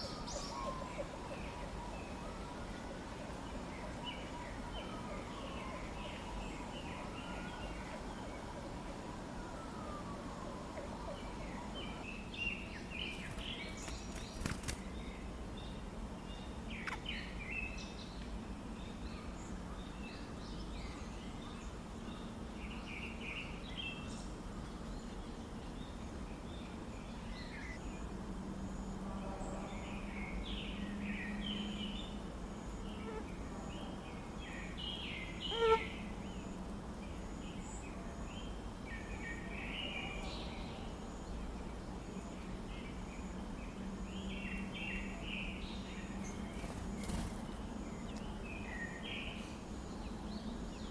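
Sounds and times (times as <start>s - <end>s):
small birds chirping: 11.1s - 28.3s, 29.7s - 50.9s.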